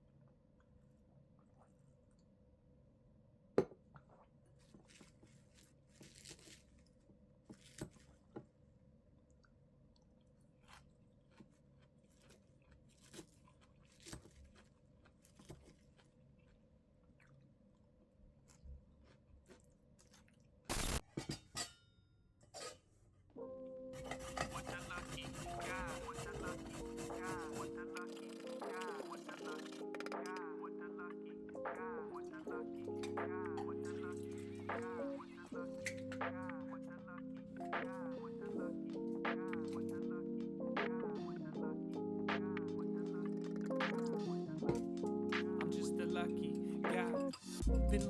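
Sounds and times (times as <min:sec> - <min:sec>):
chewing crunches: 0:04.8 - 0:06.9, 0:10.6 - 0:17.4, 0:24.1 - 0:30.4.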